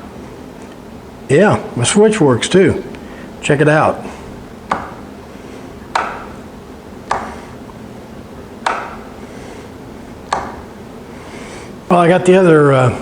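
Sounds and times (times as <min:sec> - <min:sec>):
cord switch clicking: 0:05.9 - 0:06.4, 0:08.6 - 0:09.0, 0:10.3 - 0:10.7.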